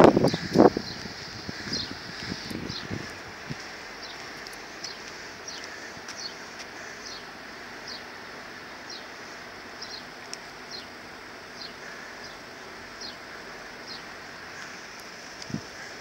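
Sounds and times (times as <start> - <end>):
background hiss: 0.0 - 16.0
small bird chirping: 9.8 - 10.1.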